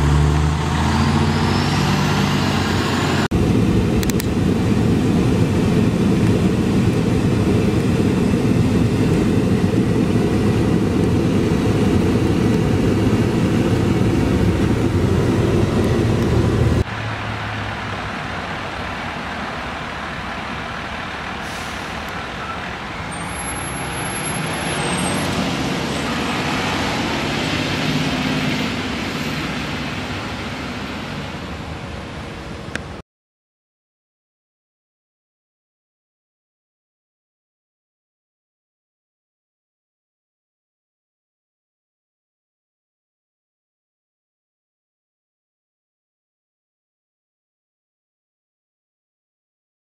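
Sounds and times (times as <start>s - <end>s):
diesel engine running: 0.0s - 32.8s
engine and road noise: 0.0s - 33.0s.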